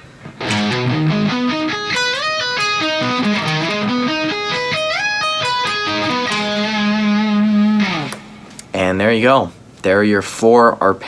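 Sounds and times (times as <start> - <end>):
electric guitar arpeggios: 0.3 - 8.6.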